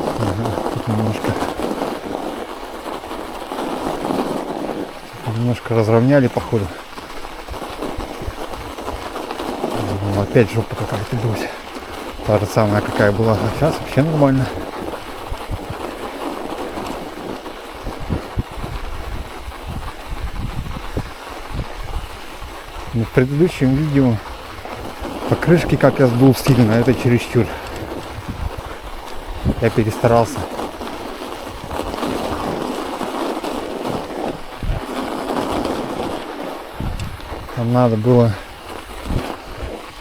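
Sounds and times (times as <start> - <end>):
bicycle tyres rolling on snow: 0.0 - 40.0
bike jolting over bumps: 0.0 - 40.0
wind noise on microphone: 0.0 - 40.0
bike thudding over bump: 35.5 - 40.0.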